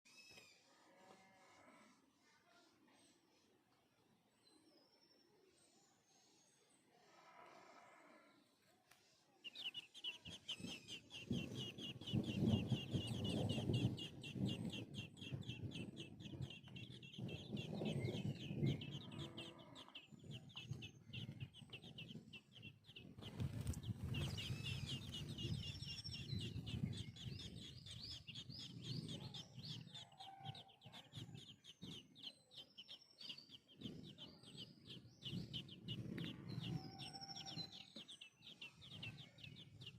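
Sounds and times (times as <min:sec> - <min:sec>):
chicks cheeping: 0:09.4 - 0:39.9
low rumble: 0:11.4 - 0:29.8.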